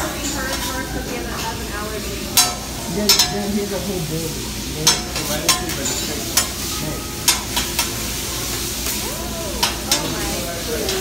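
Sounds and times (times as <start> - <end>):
food sizzling on griddle: 0.0 - 11.0
metal spatulas clacking on steel: 2.3 - 3.5, 4.8 - 6.6, 7.2 - 8.0, 9.6 - 10.2.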